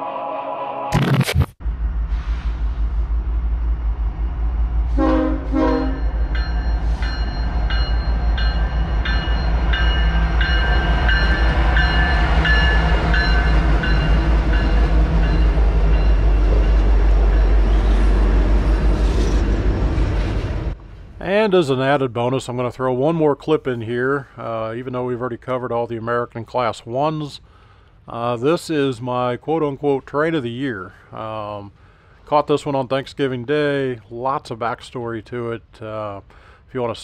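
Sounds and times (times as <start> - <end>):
locomotive rumble: 1.6 - 23.1
locomotive horn blasts: 4.9 - 6.2
bell ringing: 5.9 - 17.6.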